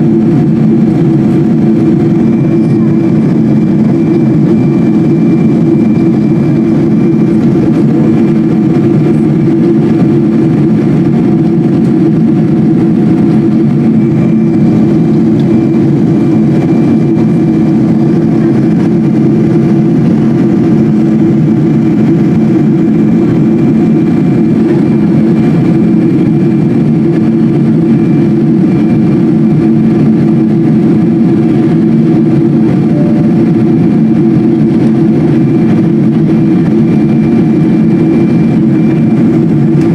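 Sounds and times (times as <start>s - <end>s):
airliner cabin jet engine drone: 0.0s - 39.9s.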